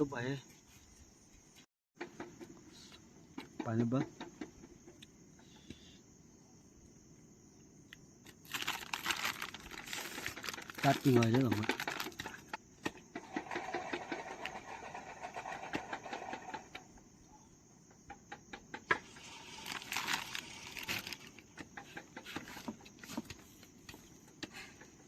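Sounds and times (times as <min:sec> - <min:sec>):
high-pitched insect drone: 0:19.0 - 0:21.4.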